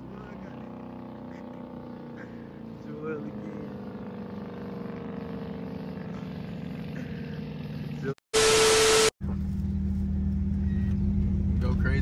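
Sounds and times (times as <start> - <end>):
car engine exhaust drone: 0.0 - 12.0
steady beep: 8.4 - 9.1.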